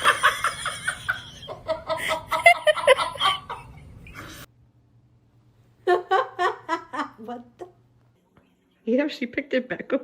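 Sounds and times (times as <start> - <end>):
person laughing in bursts: 0.0 - 4.4.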